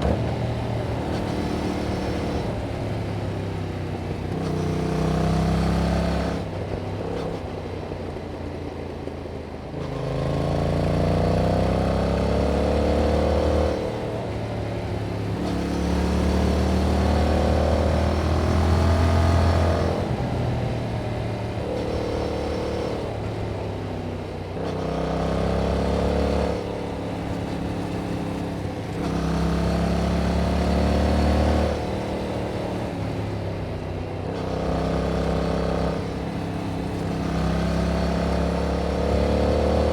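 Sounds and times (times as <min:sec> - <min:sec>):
motorcycle engine revving: 0:09.8 - 0:39.9.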